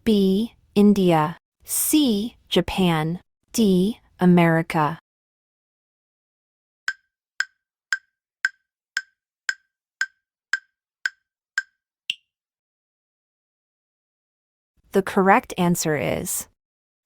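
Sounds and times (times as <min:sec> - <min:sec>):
countdown timer ticks: 0:06.9 - 0:12.2.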